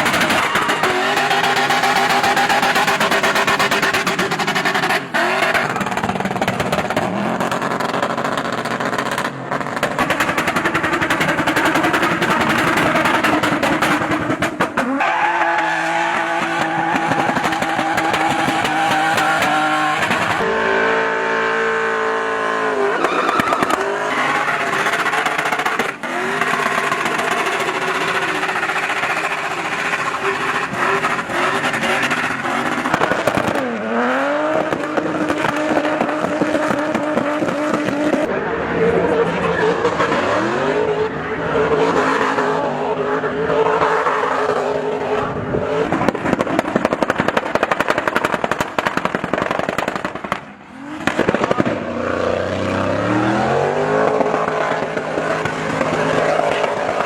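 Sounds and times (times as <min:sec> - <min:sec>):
tyre squeal: 0:00.0 - 0:03.0, 0:14.8 - 0:21.4, 0:22.8 - 0:33.3
engine revving hard: 0:50.7 - 0:57.0.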